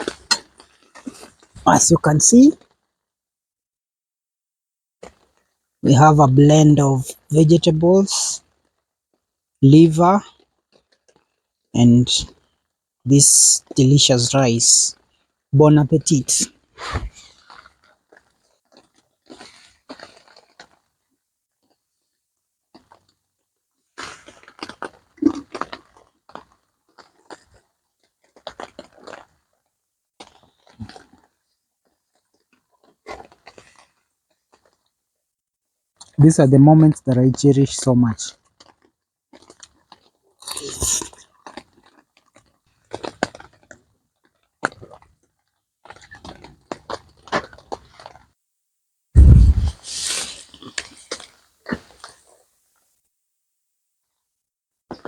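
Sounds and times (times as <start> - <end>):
person chewing crunchy food: 0.0 - 1.6, 24.0 - 27.6, 28.3 - 29.4, 30.2 - 31.3, 38.6 - 42.0, 49.2 - 52.2.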